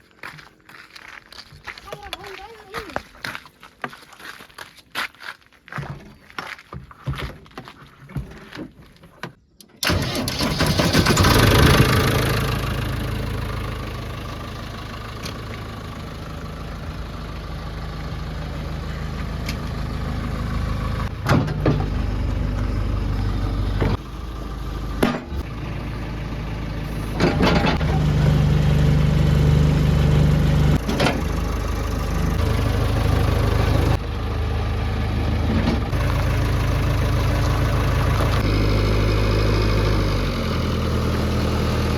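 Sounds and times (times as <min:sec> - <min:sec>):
diesel engine revving: 0:09.8 - 0:41.9.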